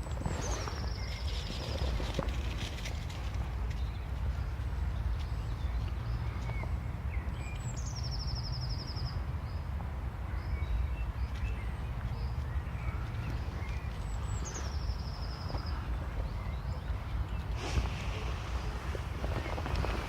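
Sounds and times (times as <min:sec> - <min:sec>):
birds chirping: 0:10.3 - 0:20.0.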